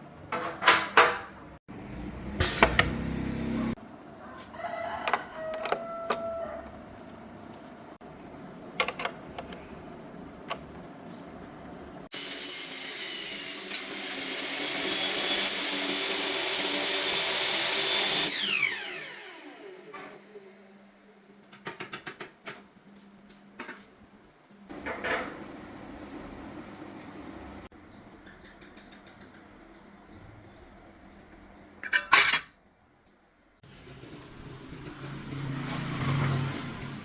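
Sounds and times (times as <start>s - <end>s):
clicks and knocks: 8.8s - 9.6s
power tool motor whining: 15.7s - 20.3s.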